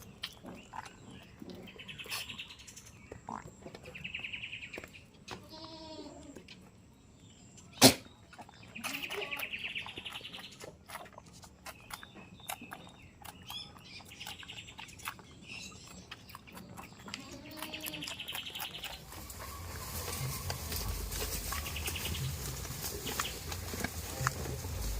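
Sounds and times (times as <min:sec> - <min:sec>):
birds chirping in trills: 0:06.9 - 0:11.0, 0:11.6 - 0:24.9.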